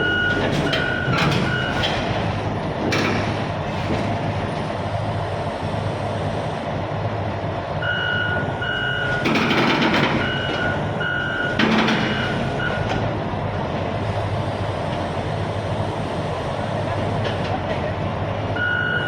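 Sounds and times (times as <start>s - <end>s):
excavator diesel engine running: 0.0s - 19.0s
high-pitched travel alarm beeps: 7.8s - 9.2s, 18.6s - 19.0s.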